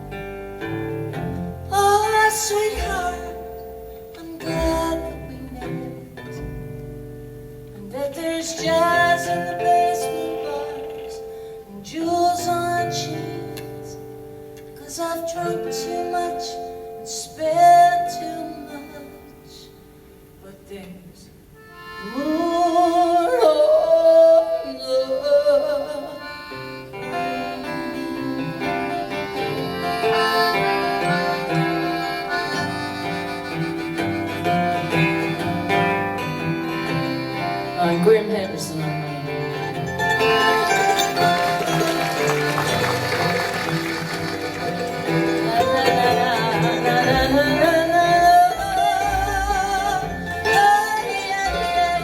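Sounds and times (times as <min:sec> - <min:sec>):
bass: 0:00.0 - 0:15.1, 0:26.2 - 0:52.0
acoustic guitar accompaniment: 0:00.0 - 0:52.0
accordion playing held notes: 0:21.6 - 0:23.8, 0:26.0 - 0:52.0.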